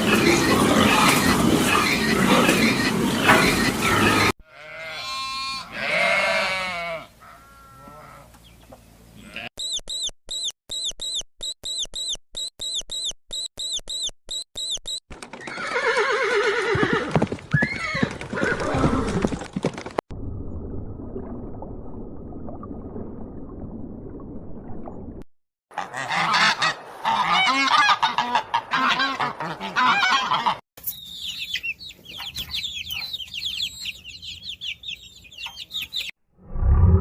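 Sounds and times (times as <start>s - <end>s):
bleat-like animal call: 3.4s - 8.4s, 9.2s - 9.5s
short high animal chirps: 9.6s - 15.0s.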